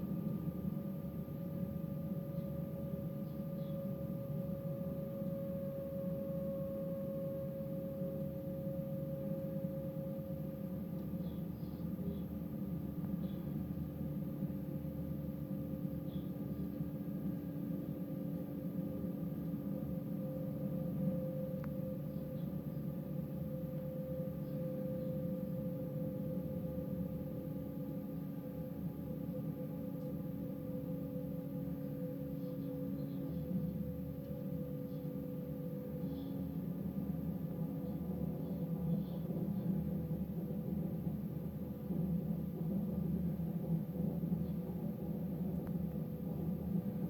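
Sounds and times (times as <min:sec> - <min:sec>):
humming tone: 0:00.0 - 0:13.9
train rumbling with whine: 0:00.0 - 0:47.0.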